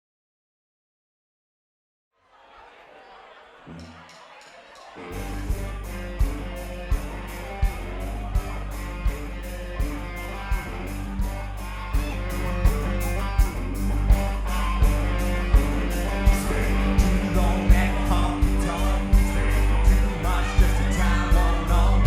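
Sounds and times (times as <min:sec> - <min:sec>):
rock band playing: 0:05.0 - 0:22.0.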